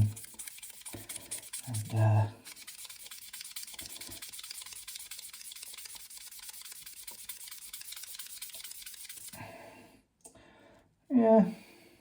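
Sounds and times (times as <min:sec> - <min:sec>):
foam pad scrubbing pipe stem: 0:00.0 - 0:09.4.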